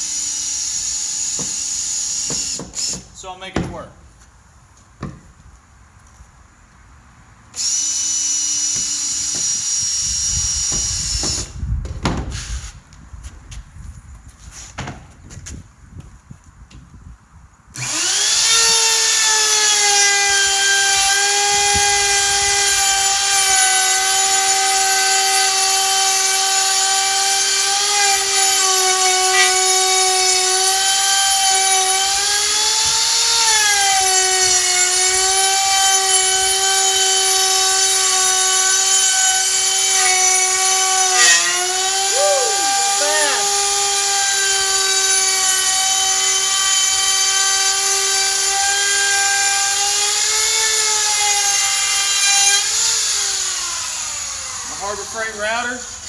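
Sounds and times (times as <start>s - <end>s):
electric router whining: 17.8s - 56.0s.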